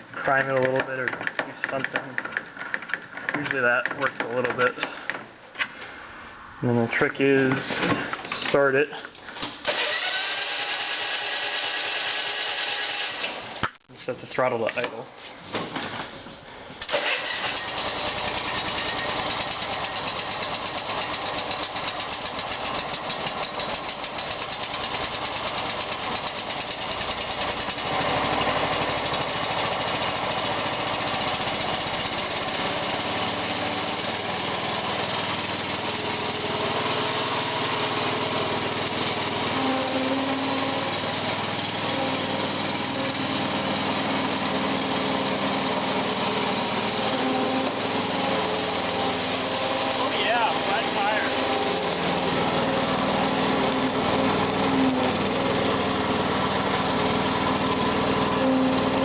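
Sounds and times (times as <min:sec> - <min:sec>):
small engine idling: 0:09.1 - 0:13.7, 0:15.9 - 0:59.0
small engine starting: 0:09.3 - 0:13.7, 0:16.8 - 0:59.0.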